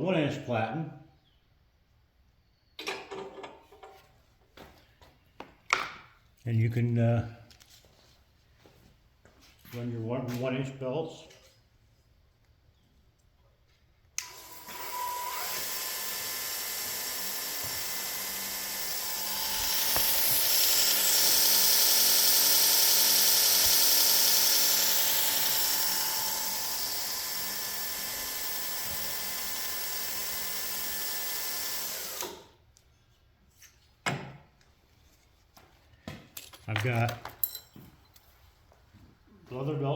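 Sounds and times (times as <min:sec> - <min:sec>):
belt grinder whirring: 0:14.2 - 0:32.6.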